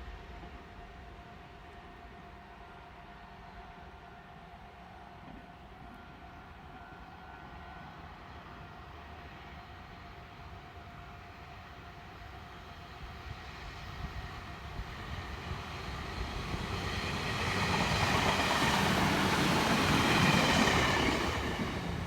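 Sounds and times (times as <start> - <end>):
high train whine: 0.0 - 22.0
electric train rumbling past: 7.2 - 22.0.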